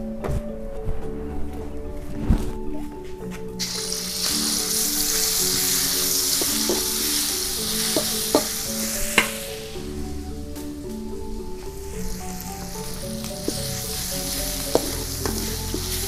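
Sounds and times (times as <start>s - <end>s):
paste sizzling in hot oil: 3.6s - 9.9s, 12.2s - 16.0s.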